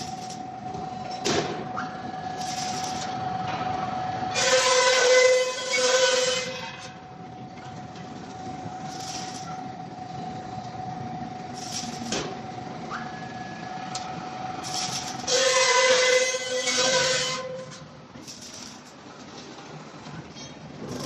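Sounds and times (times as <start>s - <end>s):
machine mechanical hum: 0.0s - 21.0s
high-pitched metallic screech: 4.3s - 6.9s, 14.6s - 18.9s.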